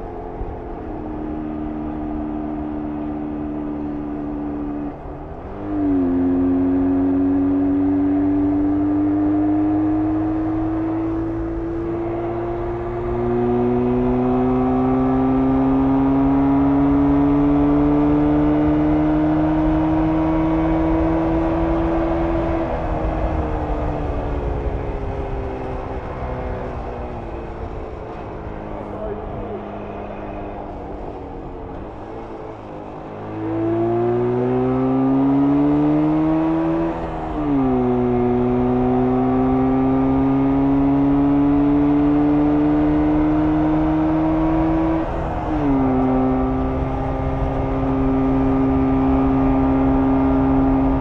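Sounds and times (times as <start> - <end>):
two-stroke motorcycle engine revving: 33.0 - 51.0.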